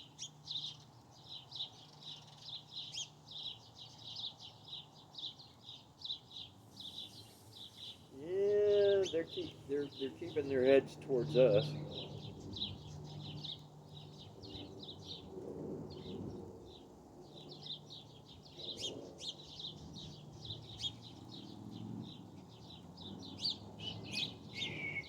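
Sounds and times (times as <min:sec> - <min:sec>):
small birds chirping and twittering: 0:00.0 - 0:25.0.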